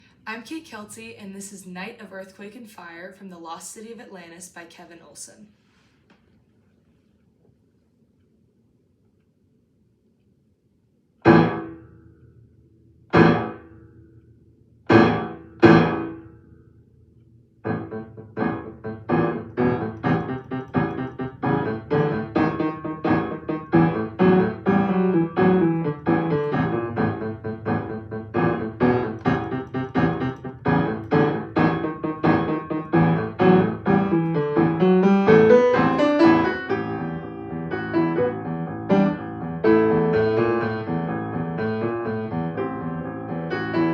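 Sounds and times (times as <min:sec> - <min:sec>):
solo piano: 0:11.2 - 0:11.9, 0:13.1 - 0:13.8, 0:14.9 - 0:16.4, 0:17.6 - 0:43.9.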